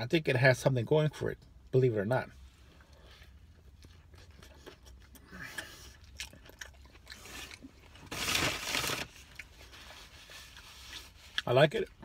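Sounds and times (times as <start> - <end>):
man chewing and licking fingers: 3.2 - 8.0.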